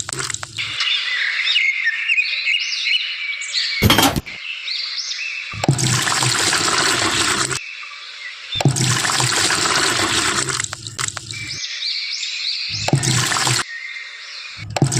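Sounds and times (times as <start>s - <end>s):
water gushing from hand pump: 5.6s - 7.6s, 8.6s - 11.5s, 12.7s - 13.6s.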